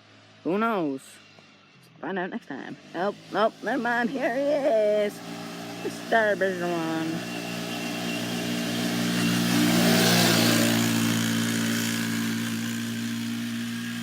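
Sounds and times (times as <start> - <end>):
atv engine passing by: 0.0 - 14.0.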